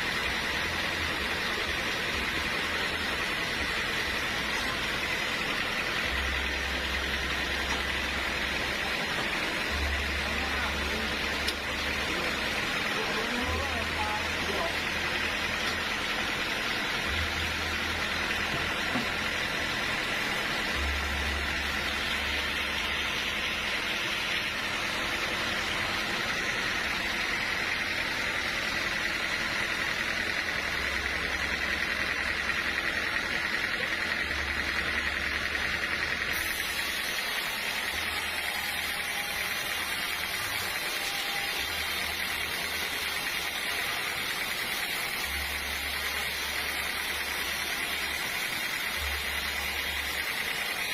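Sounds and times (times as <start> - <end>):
steady high tone: 0.0 - 32.6
sawmill machinery running: 0.0 - 50.9.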